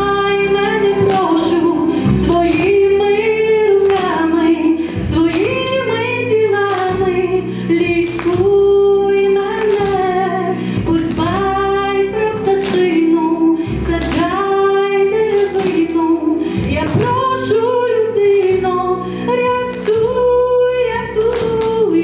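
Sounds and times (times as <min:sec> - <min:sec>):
instrumental accompaniment: 0:00.0 - 0:22.0.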